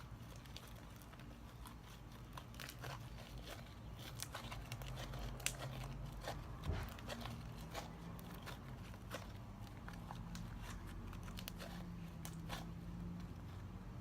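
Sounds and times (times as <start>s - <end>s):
hands kneading sticky slime: 0.0s - 14.0s.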